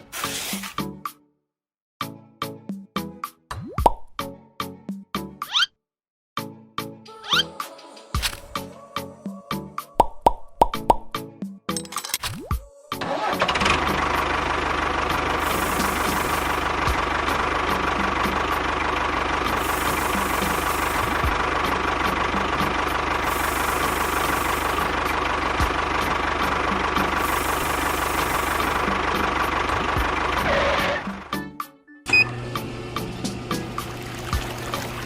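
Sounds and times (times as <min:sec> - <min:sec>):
engine running with knock: 0:13.1 - 0:31.4, 0:32.8 - 0:35.0.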